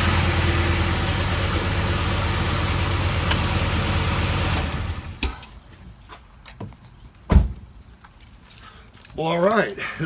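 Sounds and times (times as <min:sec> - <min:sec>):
car engine idling: 0:00.0 - 0:05.2.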